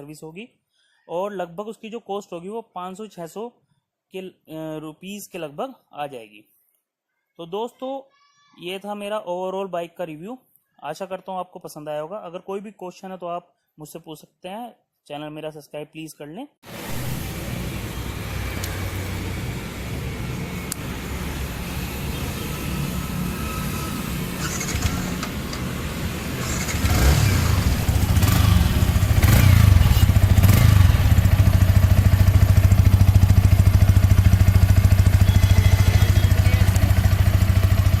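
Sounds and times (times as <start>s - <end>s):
motorcycle engine idling: 26.3s - 38.0s.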